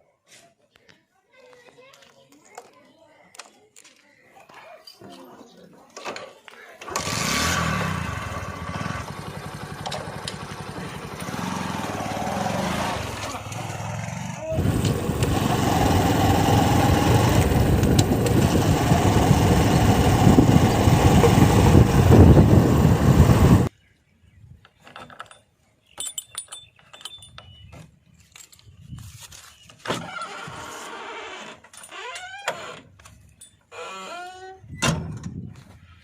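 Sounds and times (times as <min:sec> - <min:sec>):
diesel engine running: 0:06.9 - 0:23.7.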